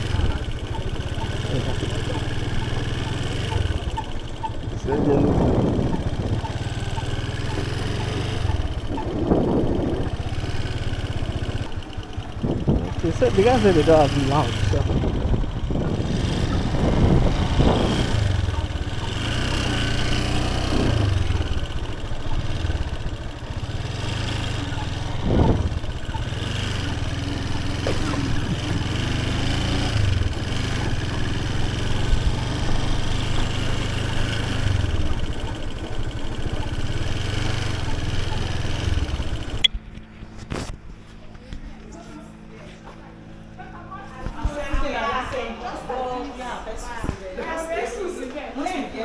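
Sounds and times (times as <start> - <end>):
motorcycle engine running: 0.0 - 45.2
wind noise: 3.7 - 10.6, 11.3 - 13.7, 14.5 - 19.1, 24.7 - 26.7.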